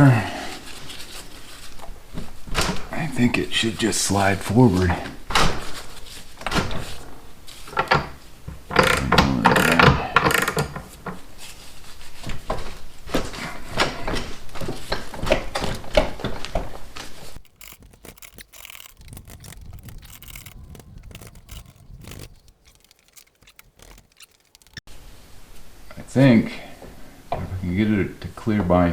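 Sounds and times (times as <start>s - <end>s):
metal scraping and knocking: 17.4s - 24.8s
faint handling noises: 17.4s - 24.9s.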